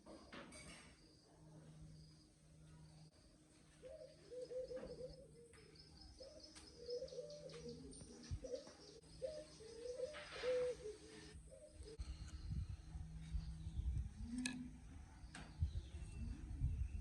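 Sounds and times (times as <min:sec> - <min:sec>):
faint dove cooing: 0:03.8 - 0:12.0
steady low hum: 0:10.7 - 0:17.0.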